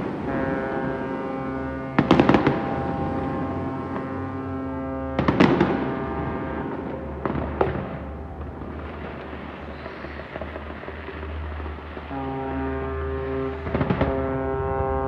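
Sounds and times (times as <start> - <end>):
deep horn chord: 0.0 - 9.4, 12.0 - 15.0
fireworks bangs and crackle: 2.0 - 2.9, 5.1 - 14.6.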